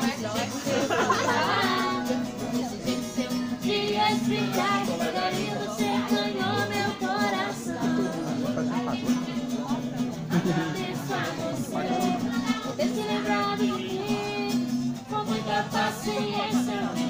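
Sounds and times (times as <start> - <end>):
group singing worship song: 3.1 - 9.3, 10.3 - 17.0.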